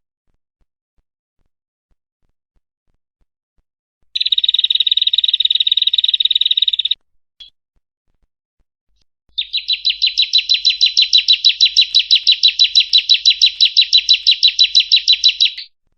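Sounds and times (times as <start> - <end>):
bird chirp: 4.2 - 7.5, 9.3 - 15.8
high sweeping bird notes: 9.4 - 15.7.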